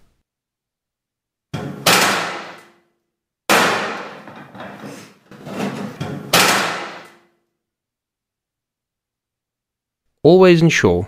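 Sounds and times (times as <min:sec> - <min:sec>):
steel roof sheeting clanging: 0:01.6 - 0:02.8, 0:03.5 - 0:07.3.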